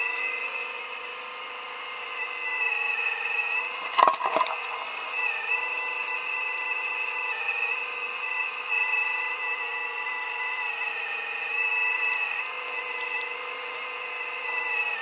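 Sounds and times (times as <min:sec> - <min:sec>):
high machine whine: 0:00.0 - 0:15.0.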